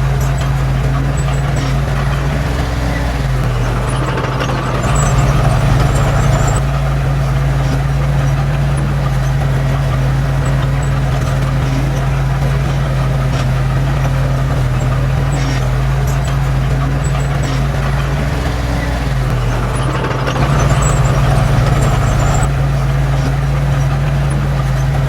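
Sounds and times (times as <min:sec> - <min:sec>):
heavy diesel engine revving: 0:00.0 - 0:25.0.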